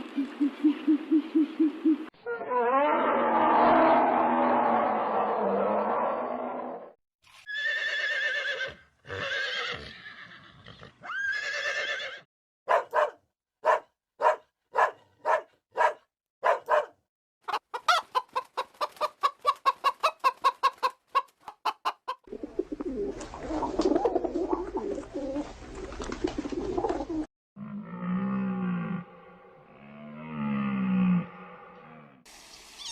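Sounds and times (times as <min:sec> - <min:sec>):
chicken clucking: 0:17.4 - 0:25.5
chickens calling: 0:17.4 - 0:27.3.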